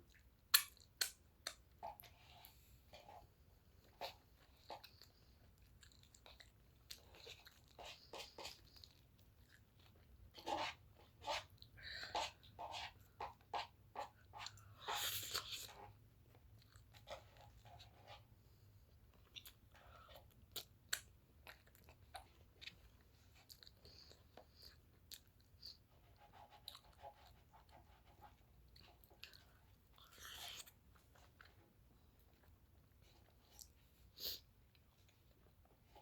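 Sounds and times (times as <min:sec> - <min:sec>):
person chewing: 0:00.1 - 0:02.6, 0:03.9 - 0:10.5, 0:14.2 - 0:17.6, 0:19.1 - 0:25.8, 0:28.7 - 0:31.6.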